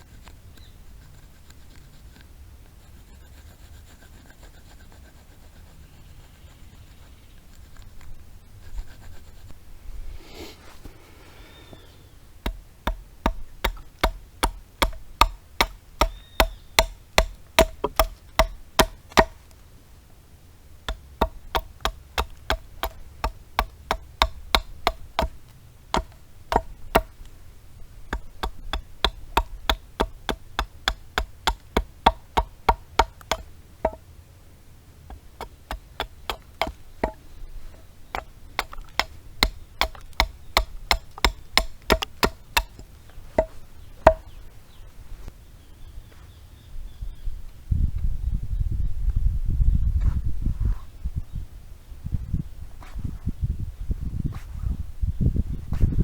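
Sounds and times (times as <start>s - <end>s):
blade chopping into wood: 12.4s - 19.4s, 20.9s - 27.2s, 28.1s - 34.0s, 35.1s - 37.2s, 38.2s - 44.3s.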